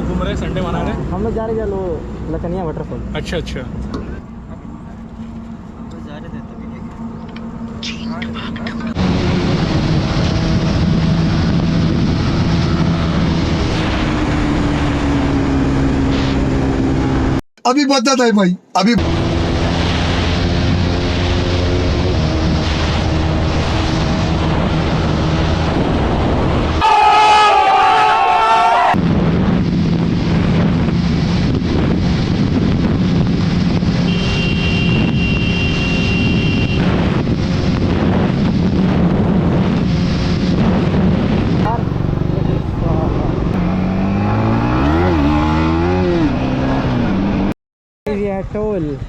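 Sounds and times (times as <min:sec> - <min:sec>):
motorcycle engine cruising: 0:02.8 - 0:17.4, 0:19.0 - 0:26.8, 0:29.0 - 0:47.5
wind rush over microphone: 0:08.9 - 0:17.3, 0:19.1 - 0:26.8, 0:28.8 - 0:46.4
horn-like pitched sound: 0:26.8 - 0:29.0, 0:34.0 - 0:37.1.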